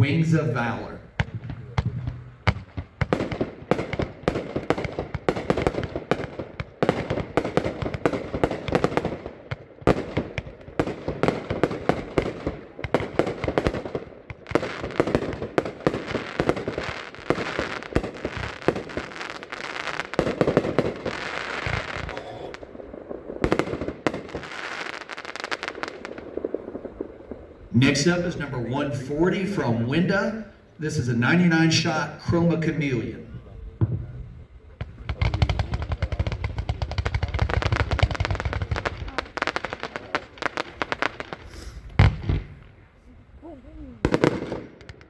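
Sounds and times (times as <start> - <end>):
firework aerial bursts: 0.0 - 45.0
firework launch thumps: 33.8 - 39.2, 41.3 - 42.6
firework hissing fizz: 35.0 - 42.4.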